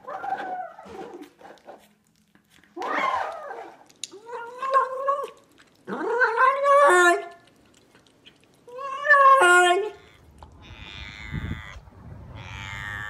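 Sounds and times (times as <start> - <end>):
cat meowing: 8.7 - 13.0.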